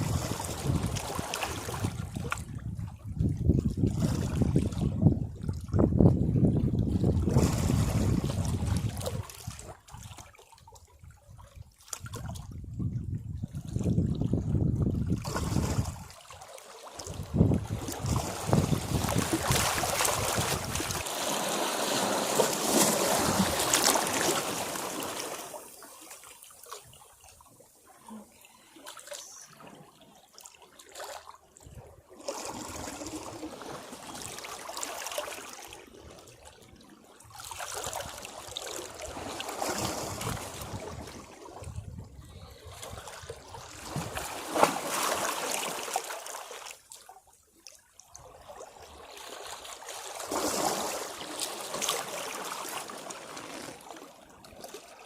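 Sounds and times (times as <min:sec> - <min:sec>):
sea waves washing against rocks: 0:17.3 - 0:25.9.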